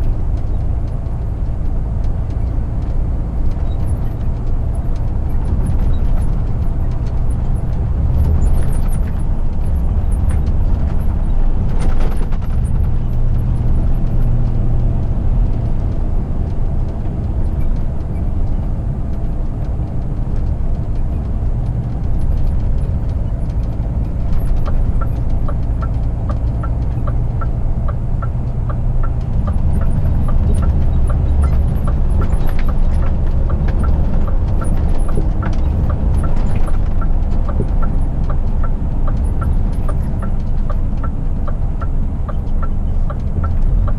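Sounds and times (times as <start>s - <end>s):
road noise: 0.0s - 43.9s
truck diesel engine running: 0.0s - 43.9s
regular ticking: 13.2s - 43.9s.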